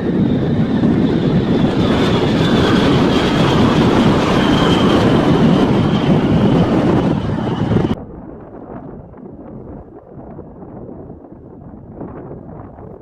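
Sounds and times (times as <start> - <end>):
large engine rumbling roar: 0.0 - 9.2.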